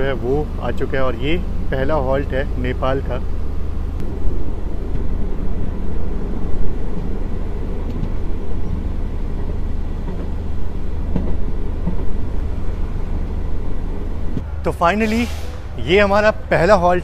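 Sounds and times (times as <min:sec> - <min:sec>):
diesel train rumbling: 0:00.0 - 0:17.0.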